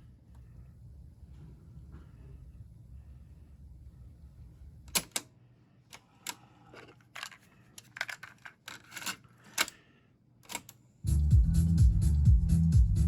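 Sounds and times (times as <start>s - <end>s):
small mechanical clicks and knocks: 4.9s - 5.3s, 5.9s - 9.8s, 10.4s - 10.8s
low hum: 11.1s - 13.0s.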